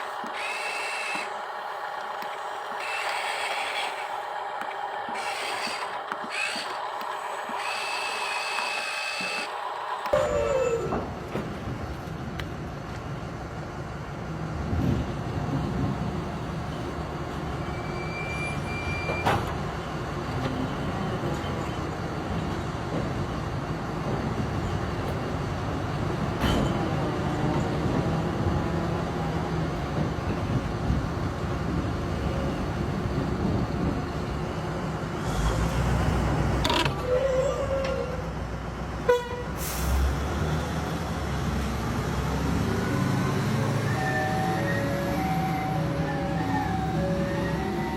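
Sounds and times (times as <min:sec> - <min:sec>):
sharp clicks: 0:02.0 - 0:04.0.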